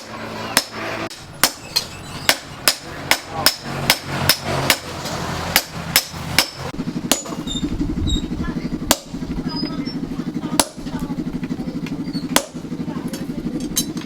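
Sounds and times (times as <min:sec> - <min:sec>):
hammer striking steel on anvil: 0:00.0 - 0:07.5, 0:08.9 - 0:09.2, 0:12.3 - 0:14.0
low hum: 0:00.0 - 0:14.0.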